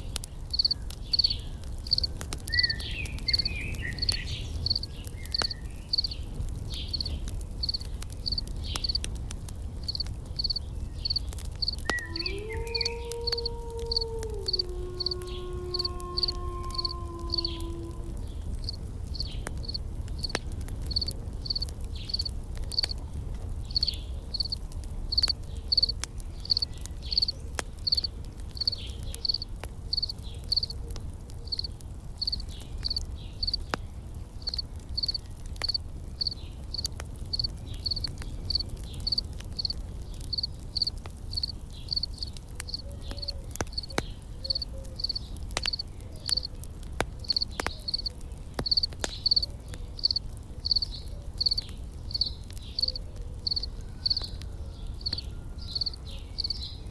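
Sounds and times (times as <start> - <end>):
campfire crackling: 0.0 - 56.9
insect chirping: 0.5 - 6.2, 6.9 - 9.0, 9.8 - 17.6, 18.6 - 23.0, 23.7 - 30.7, 31.5 - 33.6, 34.4 - 43.9, 44.5 - 46.5, 47.2 - 49.4, 50.0 - 54.3, 55.0 - 55.2, 55.8 - 56.6.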